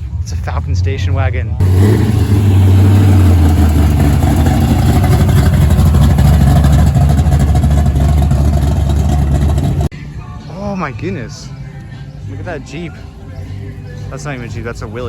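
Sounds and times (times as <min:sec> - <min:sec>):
car engine rumbling: 0:00.0 - 0:10.2.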